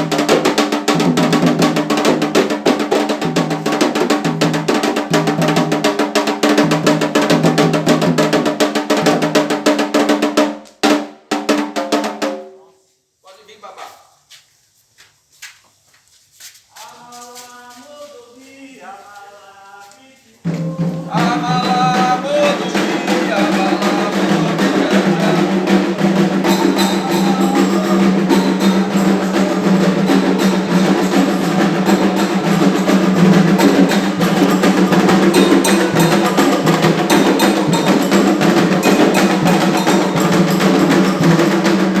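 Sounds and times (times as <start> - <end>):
loud drum percussion music: 0.0 - 12.6, 20.4 - 42.0
faint singing: 16.7 - 33.2
wood block strikes: 20.5 - 42.0.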